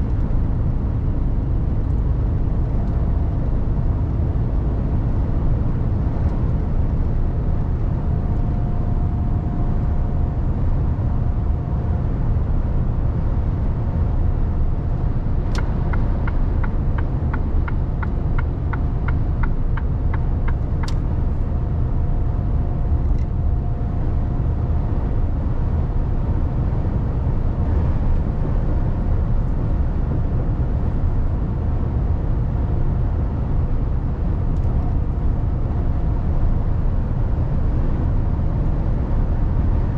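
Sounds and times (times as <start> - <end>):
truck engine and road noise: 0.0 - 39.9
regular ticking clicks: 15.5 - 21.0.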